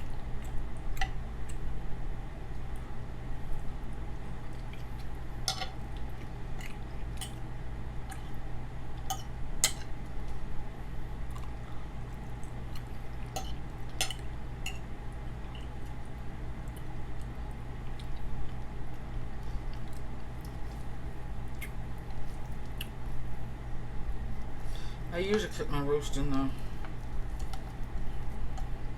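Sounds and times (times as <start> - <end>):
steady low hum: 0.0 - 28.9
person chewing food: 2.5 - 10.5, 11.2 - 23.4, 26.8 - 28.9.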